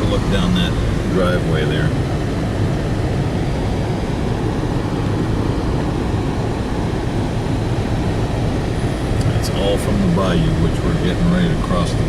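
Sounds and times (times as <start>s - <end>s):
car driving through floodwater: 0.0s - 12.0s.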